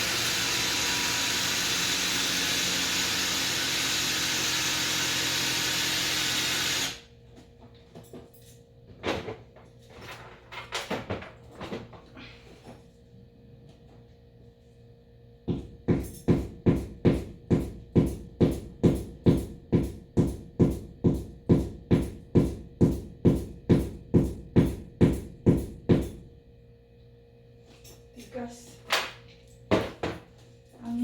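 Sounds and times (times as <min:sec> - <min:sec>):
hammer striking a hard wall: 0:15.5 - 0:26.2.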